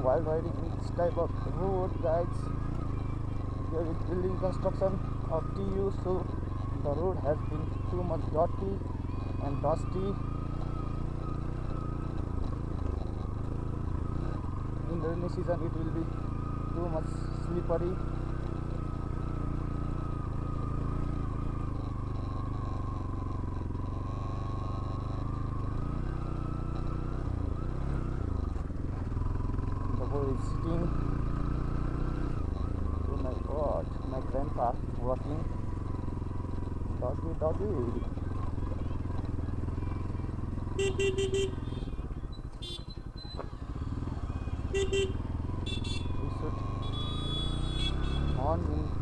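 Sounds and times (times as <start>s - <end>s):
motorcycle engine running: 0.0s - 49.0s
motorcycle horn beeps: 40.7s - 43.4s, 44.5s - 48.5s.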